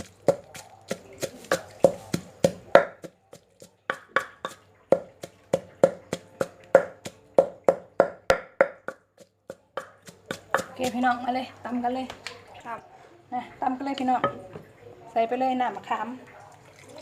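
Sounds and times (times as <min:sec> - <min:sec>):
pestle pounding in mortar: 0:00.0 - 0:11.2.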